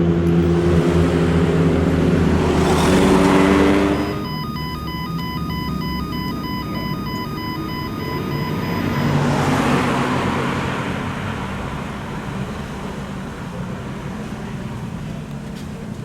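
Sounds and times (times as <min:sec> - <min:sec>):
low engine drone: 0:00.0 - 0:09.5
car driving past: 0:00.3 - 0:04.4, 0:07.7 - 0:13.2.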